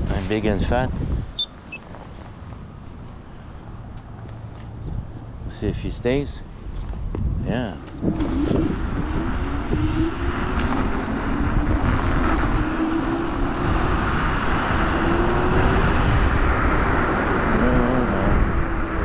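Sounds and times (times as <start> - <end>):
wind rumble on microphone: 0.0 - 19.0
electric scooter motor whine: 8.0 - 19.0.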